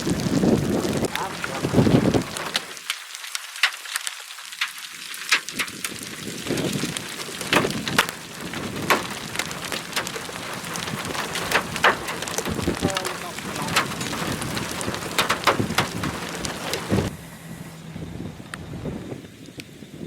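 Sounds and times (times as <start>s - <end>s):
hailstones striking: 0.0s - 17.3s
rain hiss: 0.0s - 20.0s.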